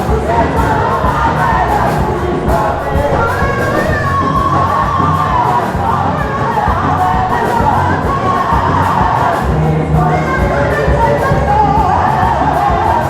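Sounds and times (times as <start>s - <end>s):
congregation singing praise music: 0.0s - 13.0s
crowd cheering: 1.6s - 9.4s.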